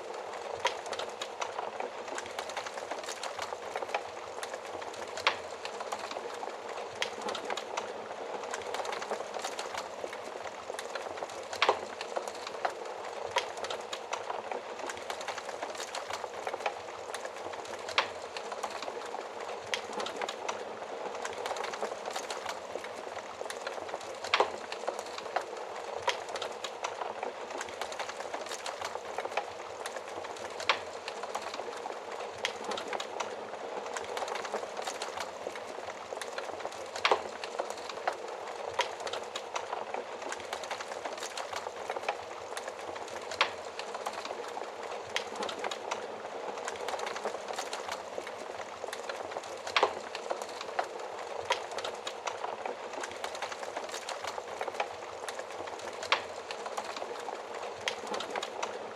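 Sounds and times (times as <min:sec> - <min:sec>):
wood fire crackling: 0:00.0 - 0:58.9.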